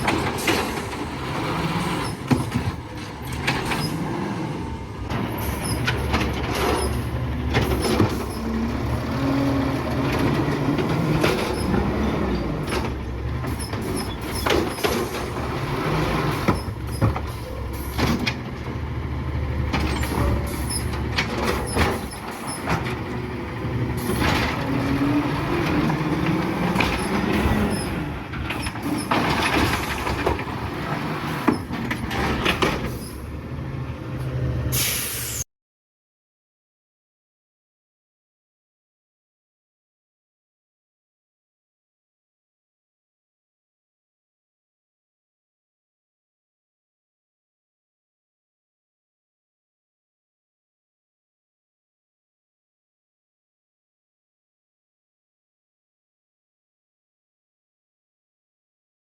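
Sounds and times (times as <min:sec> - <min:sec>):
garbage truck engine revving: 0:00.0 - 0:34.8.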